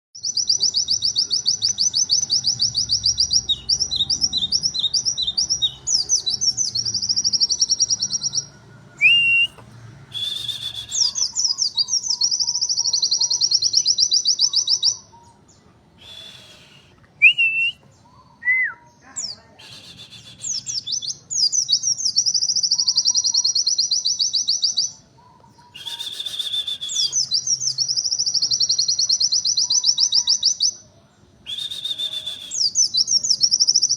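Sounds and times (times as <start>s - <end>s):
bird whistled notes: 9.0s - 15.0s, 16.0s - 17.8s, 19.6s - 24.7s, 25.7s - 30.5s, 31.5s - 33.9s.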